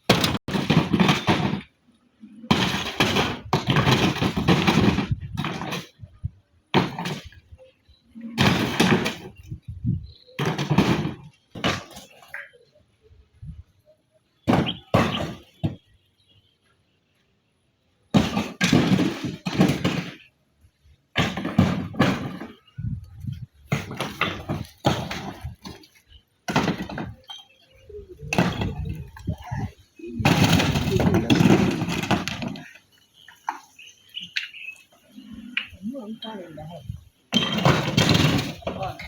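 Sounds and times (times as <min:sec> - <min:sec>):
hard objects knocking and clattering: 0:00.0 - 0:01.8, 0:02.5 - 0:06.1, 0:08.4 - 0:09.6, 0:10.3 - 0:12.4, 0:18.1 - 0:20.3, 0:21.1 - 0:27.4, 0:28.2 - 0:32.9, 0:36.8 - 0:39.0
voices: 0:22.3 - 0:39.0.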